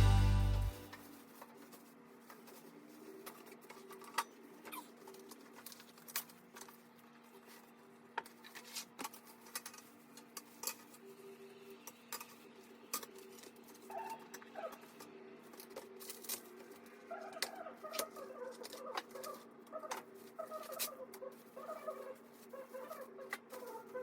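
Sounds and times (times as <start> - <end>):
low steady hum: 0.0 - 1.0
music: 0.0 - 1.0.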